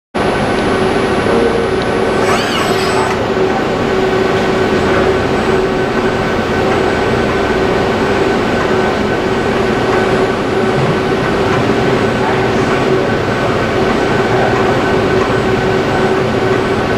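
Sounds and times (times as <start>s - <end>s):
brief high warbling sound: 1.2s - 3.5s.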